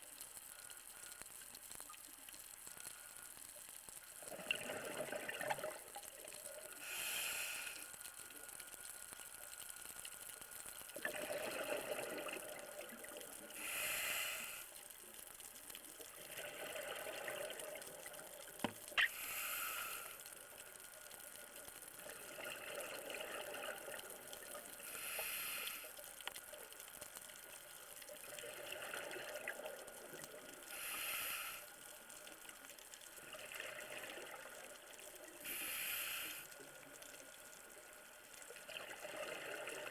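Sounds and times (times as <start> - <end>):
diver inhaling through regulator: 6.8 - 8.0, 13.5 - 14.7, 19.0 - 20.3, 24.8 - 26.0, 30.7 - 31.8, 35.4 - 36.6
exhaled bubbles rushing: 11.0 - 13.2.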